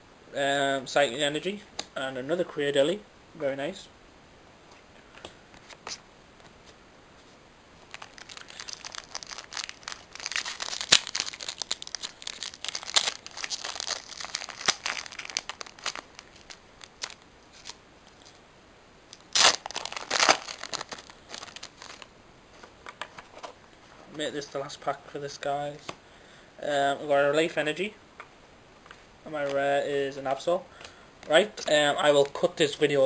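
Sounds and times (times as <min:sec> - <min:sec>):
foil wrapper crinkling: 0:07.8 - 0:18.4, 0:19.2 - 0:22.1
foil pack ripping open: 0:07.9 - 0:17.8, 0:19.2 - 0:22.1.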